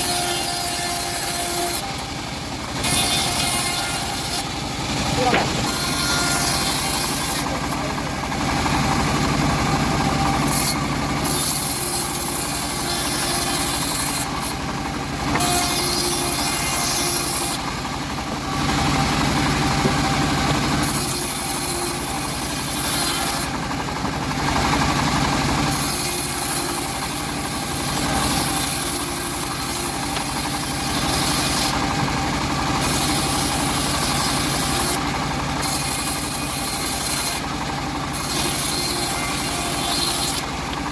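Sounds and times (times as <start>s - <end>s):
bandsaw blade cutting wood: 0.0s - 24.2s, 24.8s - 40.9s
engine humming: 1.4s - 11.2s.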